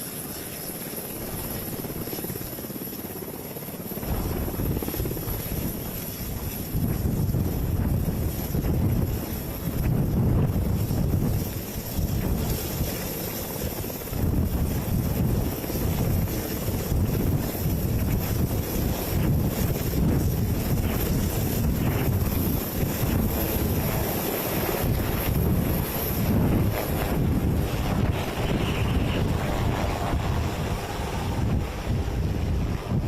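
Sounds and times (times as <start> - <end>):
helicopter engine and rotor: 0.0 - 33.0
wind buffeting microphone: 3.9 - 33.0.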